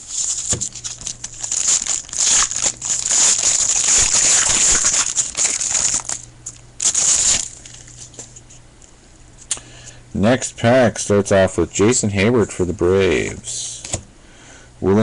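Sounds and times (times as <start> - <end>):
card pack wrapper crinkling: 0.0 - 8.4.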